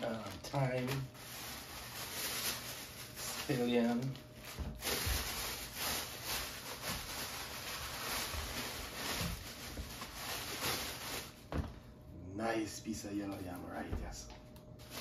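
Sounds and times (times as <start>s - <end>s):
rustling: 0.0s - 11.8s.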